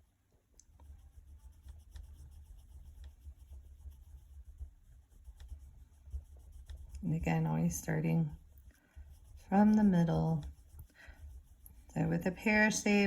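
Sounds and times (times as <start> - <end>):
low steady hum: 0.0 - 13.0
drawing tool scratching paper: 0.8 - 13.0.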